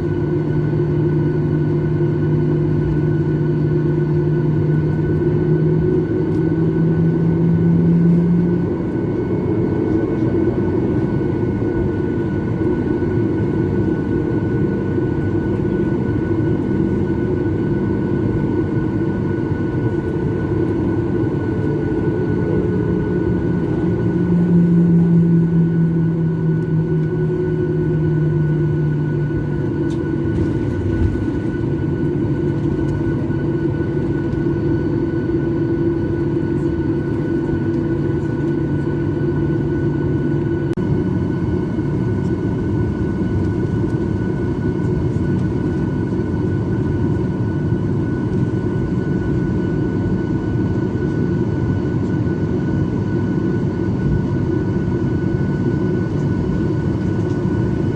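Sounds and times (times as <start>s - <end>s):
jet engines rumbling in cabin: 0.0s - 57.9s.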